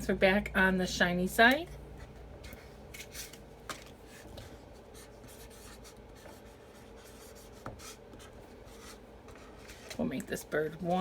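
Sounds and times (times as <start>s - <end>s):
marker scratching on paper: 4.9s - 9.9s.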